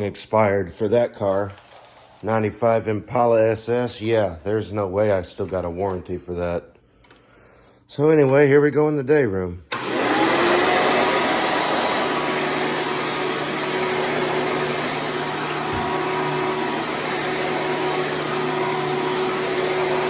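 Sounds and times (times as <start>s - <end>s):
upright vacuum cleaner running: 9.7s - 20.0s.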